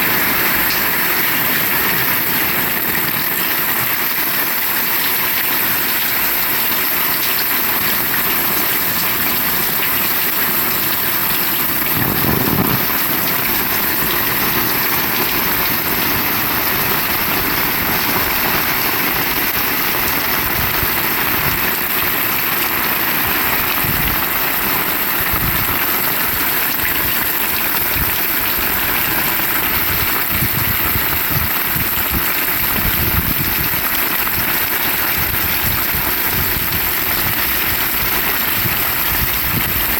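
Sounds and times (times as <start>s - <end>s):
heavy rain falling: 0.0s - 39.9s
low rumble: 11.8s - 14.4s.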